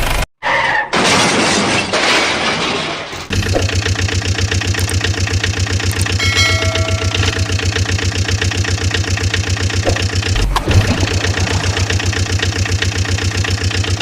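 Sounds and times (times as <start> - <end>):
vehicle engine idling: 3.3 - 14.0
thump with noisy burst: 9.8 - 13.2.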